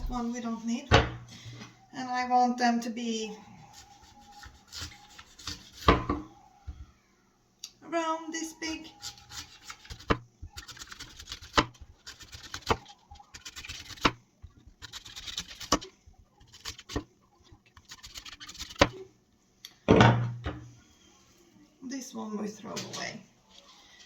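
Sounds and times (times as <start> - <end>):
axe chopping apples: 9.7 - 11.9.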